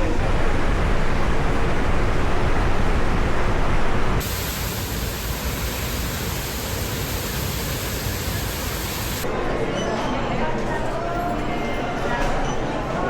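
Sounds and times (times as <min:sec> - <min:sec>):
rushing water roar: 0:00.0 - 0:09.2.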